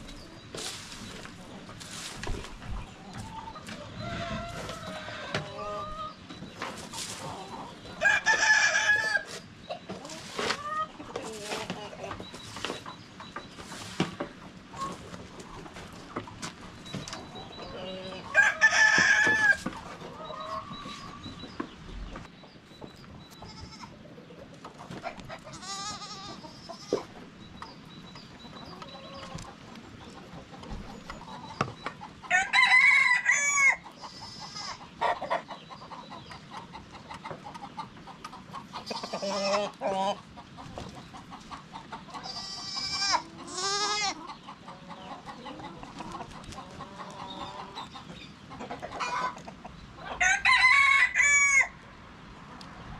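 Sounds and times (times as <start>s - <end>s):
chickens clucking: 0.0s - 52.9s
rooster crowing: 8.0s - 9.2s, 18.3s - 19.6s, 32.3s - 33.8s, 50.2s - 51.8s.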